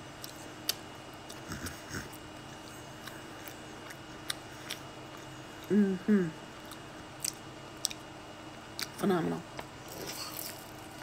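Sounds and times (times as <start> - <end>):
closed-mouth hum: 0.0 - 11.0
quiet chewing: 0.2 - 5.8.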